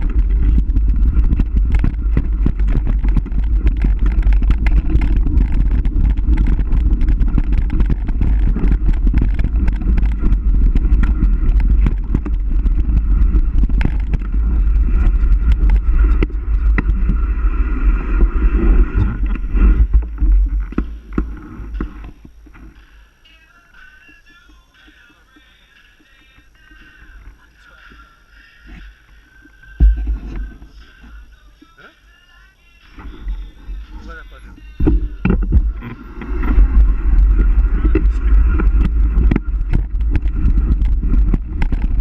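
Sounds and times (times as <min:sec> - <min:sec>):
rattling knocks on rough ground: 0:00.0 - 0:17.2, 0:29.8 - 0:30.7, 0:34.8 - 0:42.0
wind buffeting microphone: 0:00.0 - 0:22.6, 0:33.2 - 0:42.0.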